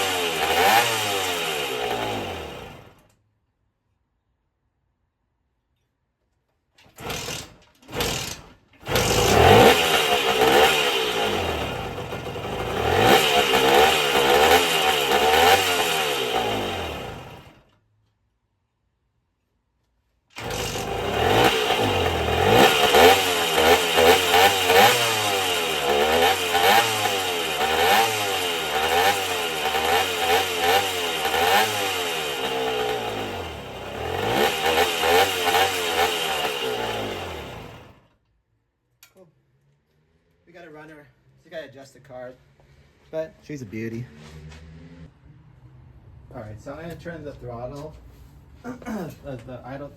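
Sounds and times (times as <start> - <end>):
two-stroke engine revving unevenly: 0.0 - 3.0, 7.0 - 17.6, 20.4 - 38.1.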